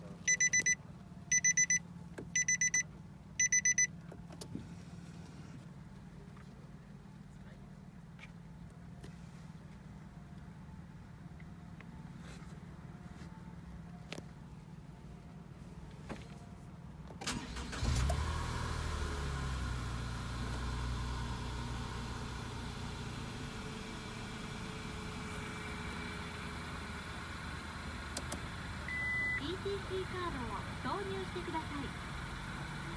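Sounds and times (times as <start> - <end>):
car warning buzzer beeping: 0.3 - 1.8, 2.4 - 2.8, 3.4 - 3.9, 17.3 - 18.3, 28.2 - 32.9
car engine starting and idling: 9.0 - 32.9
starter motor cranking: 17.2 - 18.6
low steady hum: 27.0 - 32.9.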